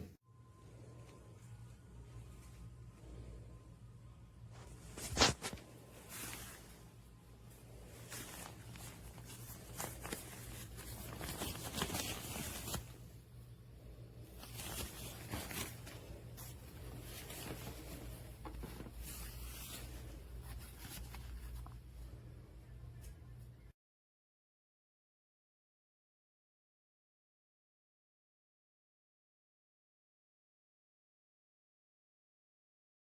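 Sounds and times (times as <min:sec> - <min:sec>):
low steady hum: 0:00.0 - 0:23.7
fabric rustling: 0:04.4 - 0:23.4.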